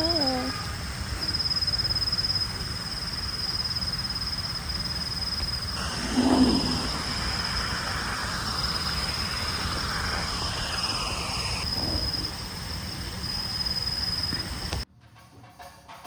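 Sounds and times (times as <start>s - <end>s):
insect drone: 0.0s - 14.9s
low rumble: 5.5s - 14.8s.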